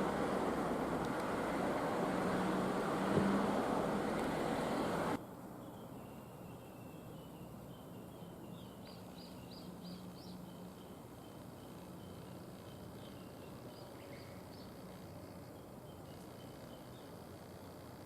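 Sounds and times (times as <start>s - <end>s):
road vehicle noise: 0.0s - 5.6s
bird singing: 0.0s - 17.3s.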